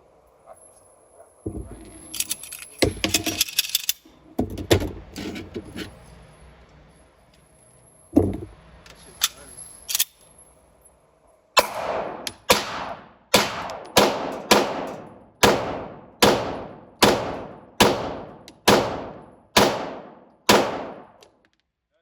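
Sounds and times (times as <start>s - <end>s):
gunshots with echo: 11.6s - 21.2s.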